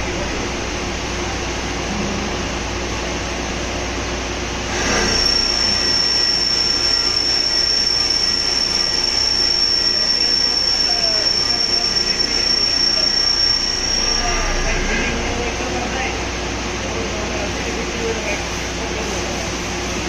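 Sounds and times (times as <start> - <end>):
drilling machine humming: 0.0 - 18.6
high-pitched machine whine: 0.0 - 20.0.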